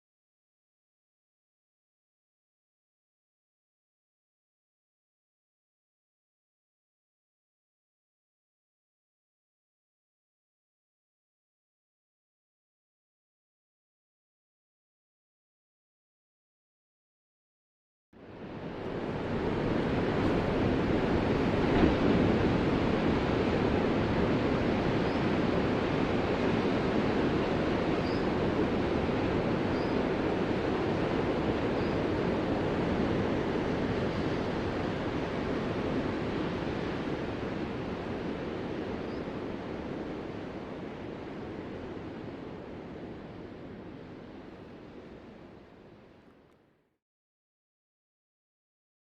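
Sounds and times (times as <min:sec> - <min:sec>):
ocean waves washing: 0:18.2 - 0:46.0.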